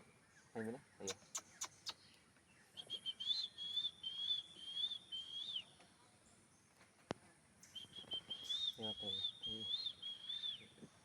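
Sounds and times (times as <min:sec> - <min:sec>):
animal whistled calls: 0:07.8 - 0:10.7.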